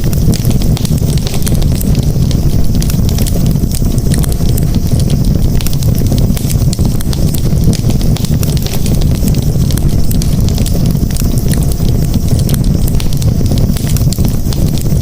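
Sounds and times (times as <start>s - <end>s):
campfire crackling: 0.0s - 15.0s
fire popping and snapping: 0.0s - 15.0s.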